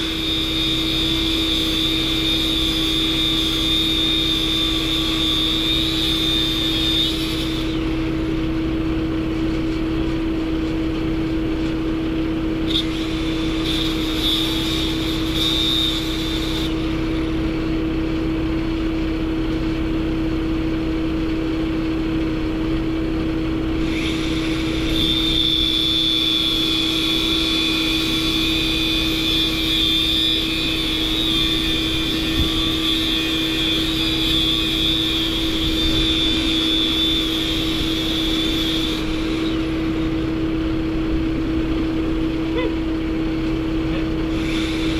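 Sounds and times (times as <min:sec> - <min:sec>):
high whistle: 0:12.7 - 0:16.8, 0:23.9 - 0:39.6
machine humming: 0:30.0 - 0:44.9.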